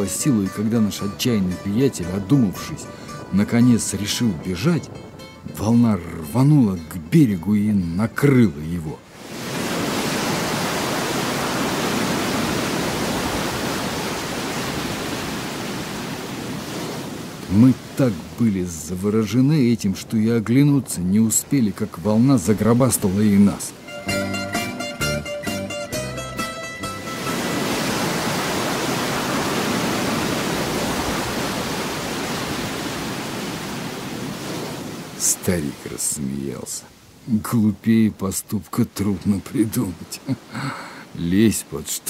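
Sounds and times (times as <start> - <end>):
music: 0.0 - 8.7, 23.8 - 27.6
sea surf rushing: 0.0 - 42.0.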